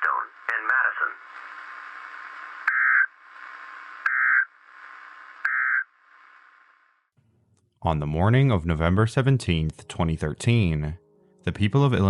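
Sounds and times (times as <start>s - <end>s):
radio hiss: 0.0s - 7.0s
short digital squawks: 2.7s - 3.1s, 4.1s - 4.5s, 5.4s - 5.9s.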